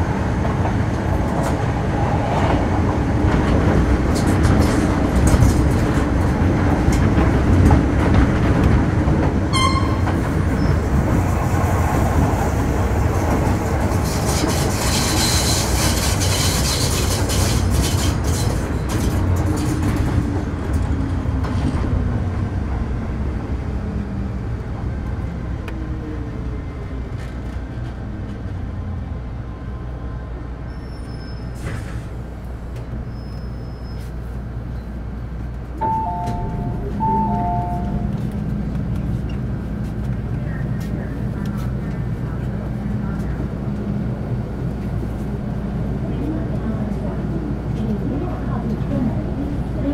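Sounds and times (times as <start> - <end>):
train horn: 9.5 - 10.2.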